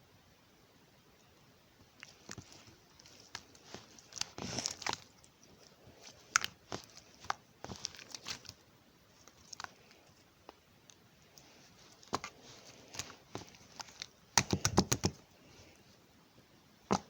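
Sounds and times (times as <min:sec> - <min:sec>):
slime squelching and popping: 0:02.0 - 0:11.0, 0:11.8 - 0:15.2.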